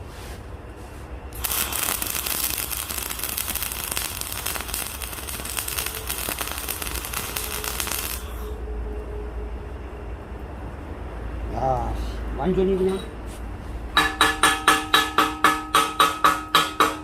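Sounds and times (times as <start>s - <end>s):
welding arc crackling: 1.3s - 8.4s
welder hum: 1.3s - 8.6s.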